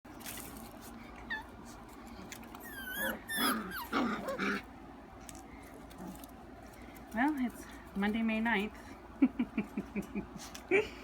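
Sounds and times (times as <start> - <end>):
puppies whining and yipping: 1.0 - 4.6.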